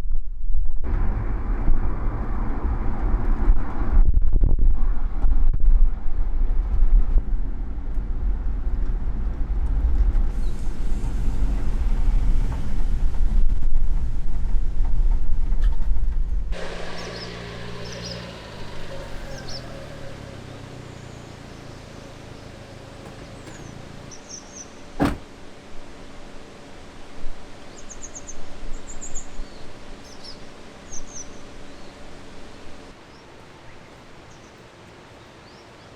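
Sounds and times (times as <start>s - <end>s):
loud low rumbling: 0.0s - 26.4s
bird chirps: 16.8s - 20.1s, 23.2s - 24.8s, 27.7s - 32.0s.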